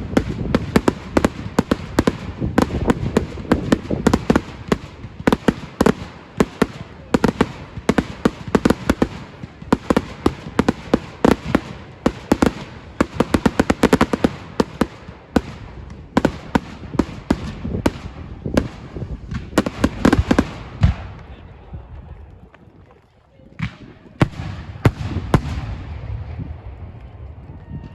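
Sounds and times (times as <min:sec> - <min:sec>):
fireworks bangs and pops: 0:00.0 - 0:27.5.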